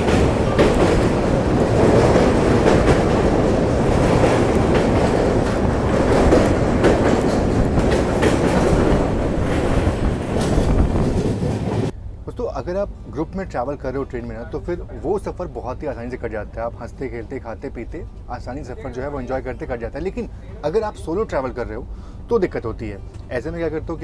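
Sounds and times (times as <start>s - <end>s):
wheel clacks: 0.0s - 11.9s
train wheels rumbling on rail: 0.0s - 24.0s.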